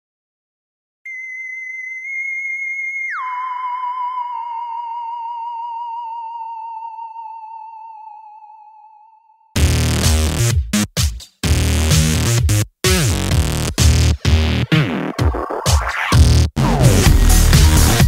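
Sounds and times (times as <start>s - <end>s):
electronic tone gliding down: 1.1s - 9.6s.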